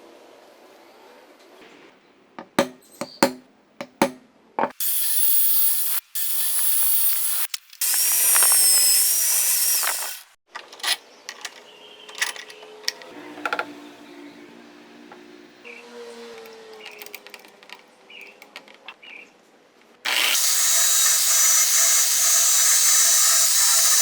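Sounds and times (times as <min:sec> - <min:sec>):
handling clicks and knocks: 0:02.4 - 0:04.8, 0:10.5 - 0:13.1, 0:16.7 - 0:19.2
high-pitched power tool running: 0:04.8 - 0:10.3, 0:20.1 - 0:24.0.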